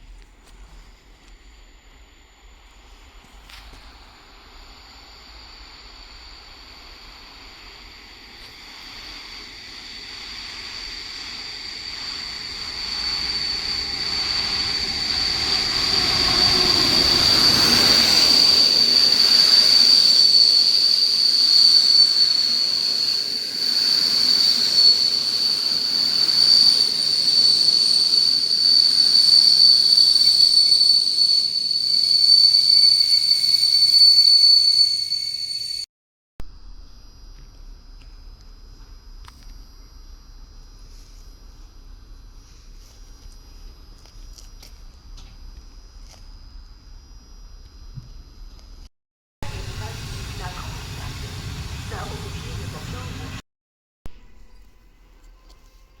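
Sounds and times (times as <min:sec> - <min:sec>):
train rumbling: 0:00.0 - 0:34.0, 0:49.4 - 0:53.4
high-pitched wheel squeal: 0:08.5 - 0:35.9.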